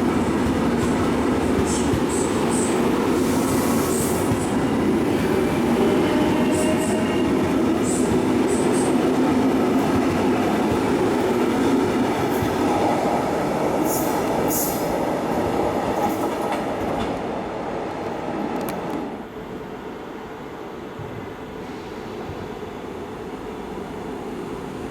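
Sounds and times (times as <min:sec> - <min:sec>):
train rumble and clatter on rails: 0:00.0 - 0:24.9.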